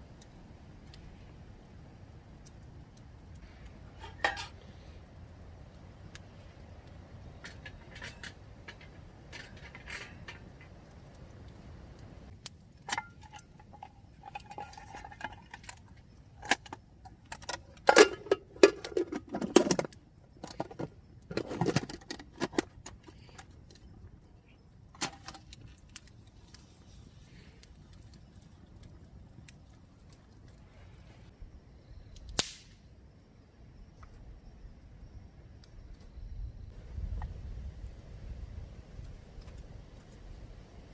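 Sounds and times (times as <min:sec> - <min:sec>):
camp cookware clinking and clattering: 0:03.9 - 0:04.8, 0:07.2 - 0:11.4, 0:12.4 - 0:24.2, 0:24.9 - 0:26.6.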